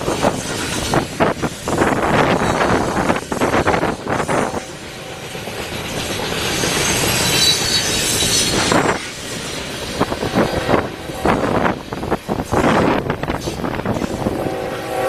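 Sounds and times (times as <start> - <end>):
faint high wheel squeal: 5.8 - 9.5.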